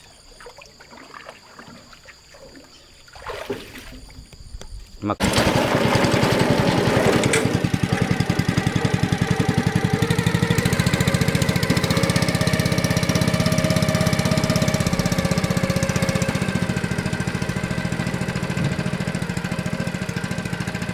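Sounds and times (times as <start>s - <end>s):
boat engine chugging: 5.2s - 20.9s.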